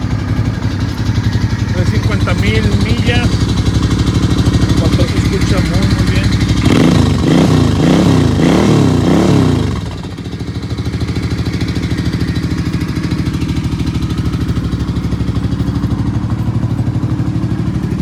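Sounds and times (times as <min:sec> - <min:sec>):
motorcycle engine revving and idling: 0:00.0 - 0:18.0.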